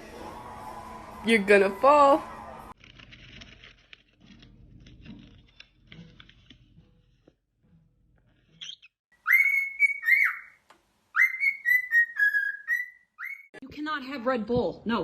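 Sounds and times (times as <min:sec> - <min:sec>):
rustling and scratching: 0:02.8 - 0:09.0
parrot whistling: 0:08.6 - 0:13.6.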